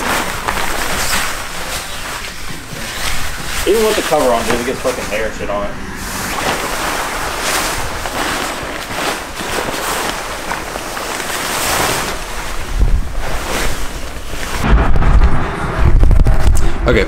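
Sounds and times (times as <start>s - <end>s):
fabric cover rustling: 0.0s - 14.6s
low rumble on microphone: 12.5s - 17.0s.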